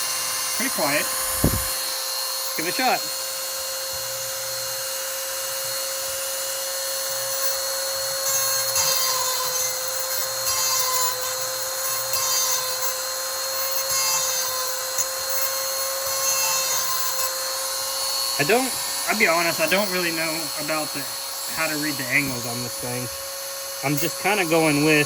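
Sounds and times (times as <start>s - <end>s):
grinding wheel whining: 0.0s - 25.0s
grinding wheel grinding chain: 5.5s - 25.0s.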